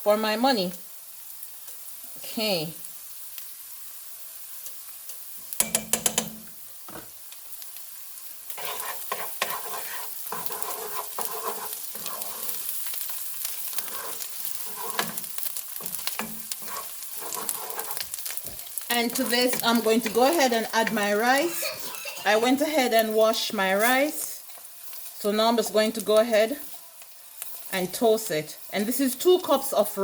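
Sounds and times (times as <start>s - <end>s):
vegetables sizzling in butter: 0.0s - 30.0s
spoon stirring and scraping: 8.5s - 23.2s.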